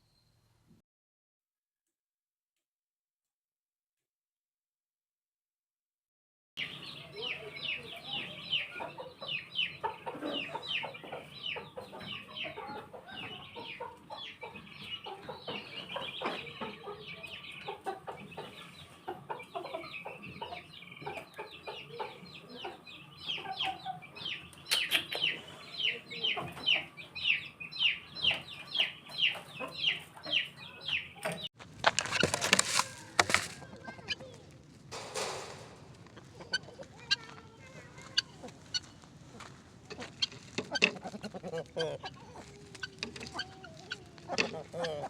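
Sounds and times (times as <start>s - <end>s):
chickens chirping: 6.6s - 45.0s
loud rustling: 31.6s - 37.0s.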